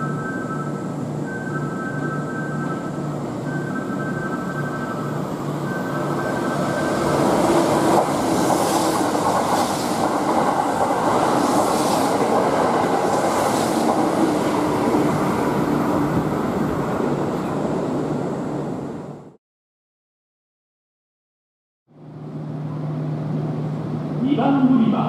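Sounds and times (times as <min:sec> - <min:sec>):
electric train passing at speed: 0:00.0 - 0:19.4, 0:21.9 - 0:25.0
train cars clattering: 0:05.7 - 0:15.5.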